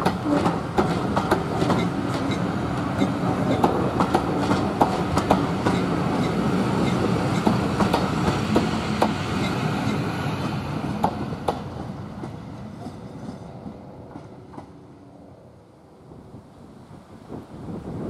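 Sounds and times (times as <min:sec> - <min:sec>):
wheels clicking over rail joints: 0:00.0 - 0:09.6
train coaches rumbling: 0:00.0 - 0:18.0.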